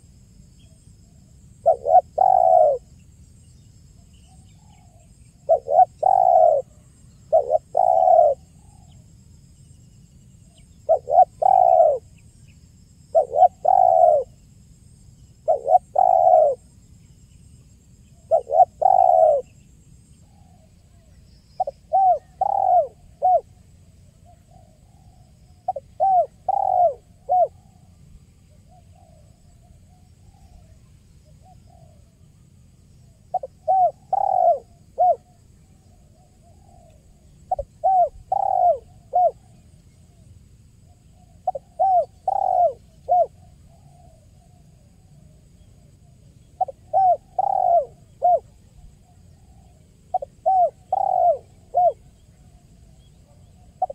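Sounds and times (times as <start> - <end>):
dove cooing: 1.6 - 2.9, 4.3 - 9.0, 10.5 - 12.1, 13.1 - 14.4, 15.4 - 16.7, 18.2 - 19.6, 21.6 - 23.6, 24.2 - 27.8, 28.5 - 32.2, 33.0 - 40.2, 41.1 - 53.9.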